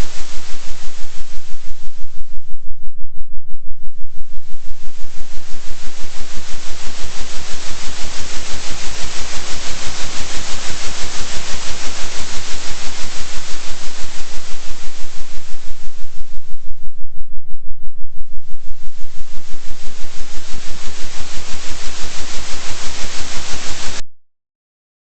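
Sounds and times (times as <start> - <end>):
oscillating synthesized noise: 0.0 - 24.0
steady low hum: 0.0 - 24.0.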